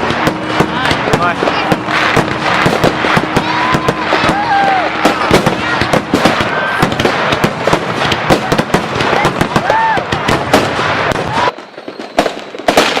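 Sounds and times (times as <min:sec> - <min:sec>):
fireworks banging and crackling: 0:00.0 - 0:13.0.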